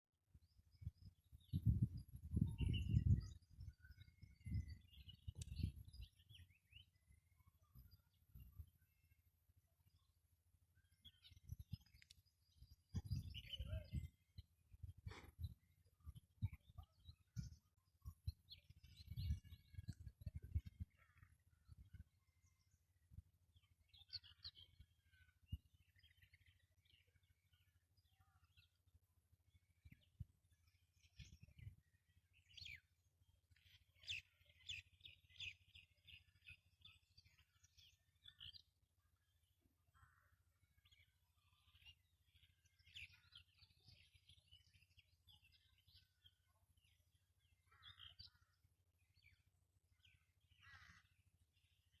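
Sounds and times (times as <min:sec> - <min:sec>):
small birds chirping: 0:00.3 - 0:52.0
harsh bird calls: 0:50.0 - 0:51.3.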